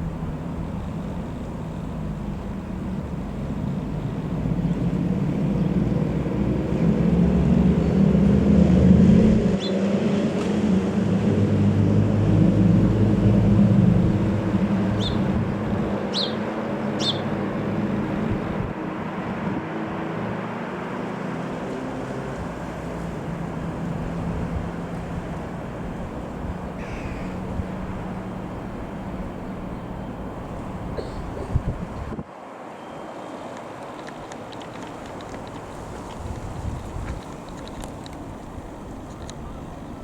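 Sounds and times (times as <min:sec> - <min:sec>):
propeller plane droning: 0:00.0 - 0:32.2, 0:34.6 - 0:40.0
short bird calls: 0:15.0 - 0:15.3, 0:16.1 - 0:16.4, 0:17.0 - 0:17.4, 0:26.8 - 0:27.5, 0:30.8 - 0:31.6.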